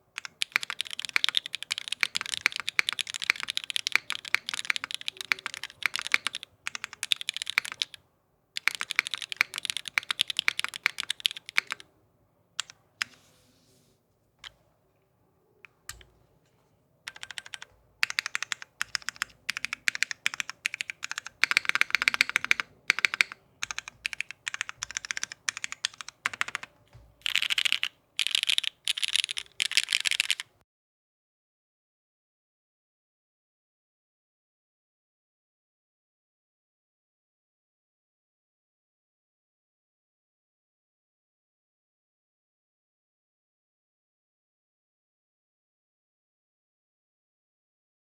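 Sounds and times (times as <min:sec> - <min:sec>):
mechanical keyboard typing: 0:00.2 - 0:08.0, 0:08.6 - 0:11.8, 0:15.7 - 0:16.1, 0:17.1 - 0:30.5.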